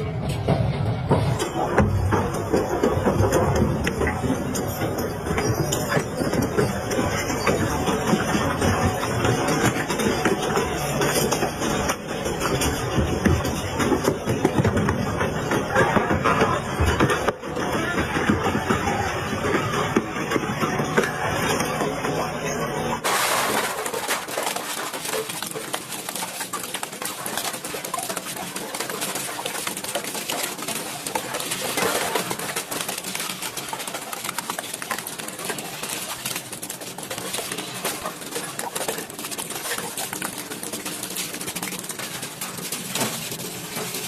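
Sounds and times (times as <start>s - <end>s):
shredder crunching and grinding: 23.0s - 44.0s.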